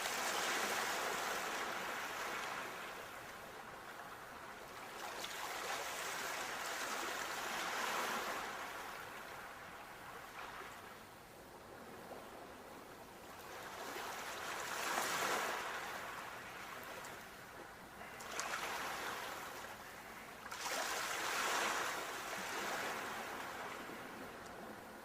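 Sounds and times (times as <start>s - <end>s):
sea waves breaking: 13.4s - 25.0s.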